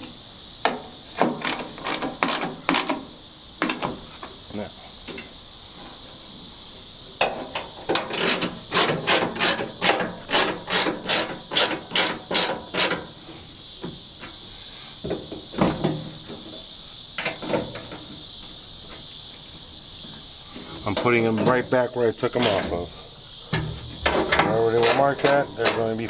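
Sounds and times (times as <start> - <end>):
high insect buzz: 0.0 - 26.0
hand tool mechanical strokes: 7.9 - 13.1, 22.3 - 22.9, 24.2 - 26.0.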